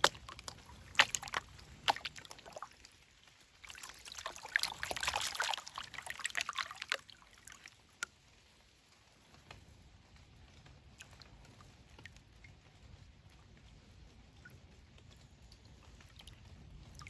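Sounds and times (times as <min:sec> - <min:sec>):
water sloshing in a pan: 0:00.0 - 0:08.2.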